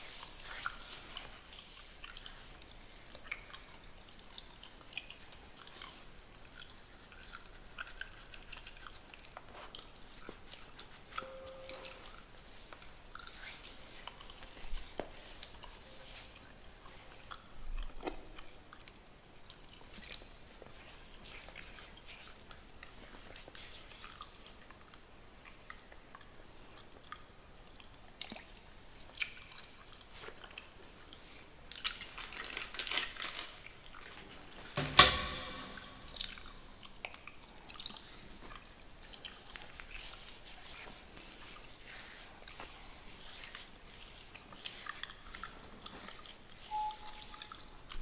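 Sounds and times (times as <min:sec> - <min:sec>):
sharp knock: 0:34.8 - 0:36.6.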